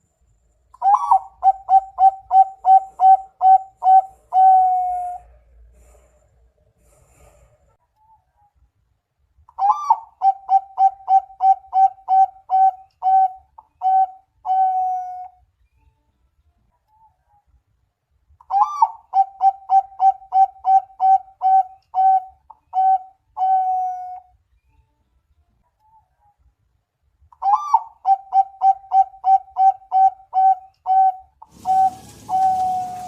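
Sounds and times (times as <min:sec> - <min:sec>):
dove cooing: 0:00.8 - 0:05.4, 0:09.6 - 0:15.3, 0:18.5 - 0:24.2, 0:27.4 - 0:33.0.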